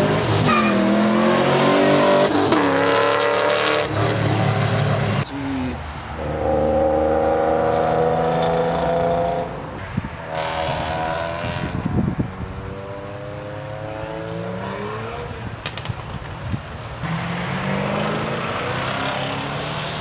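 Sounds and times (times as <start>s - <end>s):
car engine revving: 0.0s - 16.2s, 17.0s - 20.0s.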